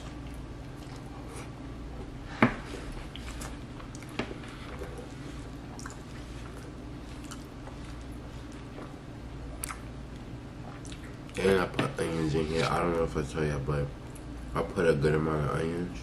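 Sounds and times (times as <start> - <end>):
wet chewing sounds: 0.0 - 1.6, 3.0 - 11.4
steady low hum: 0.0 - 16.0.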